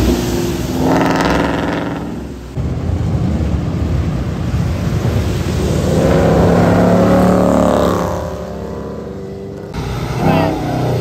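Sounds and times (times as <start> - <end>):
tyres hissing on wet road: 0.0 - 11.0
car engine accelerating past: 5.2 - 11.0.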